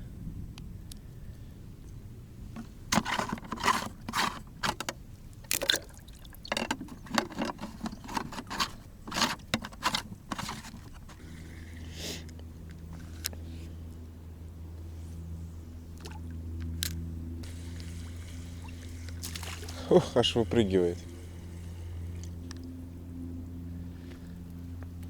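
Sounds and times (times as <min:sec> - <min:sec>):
steady low hum: 0:00.0 - 0:25.0
water splashing and sloshing: 0:02.6 - 0:11.8, 0:17.4 - 0:22.8.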